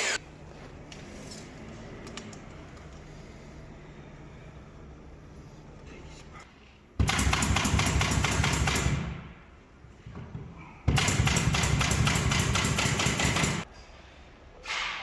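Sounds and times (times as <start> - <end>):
handheld power tool running: 0.0 - 0.2.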